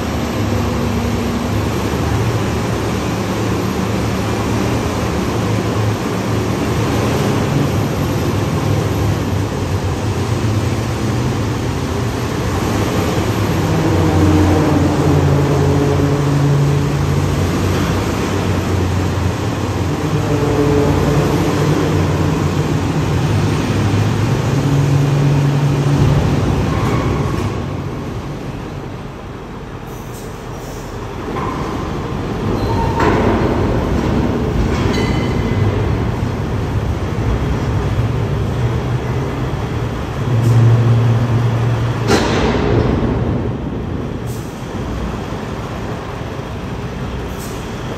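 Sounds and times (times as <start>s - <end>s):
diesel truck engine under load: 0.0s - 47.9s.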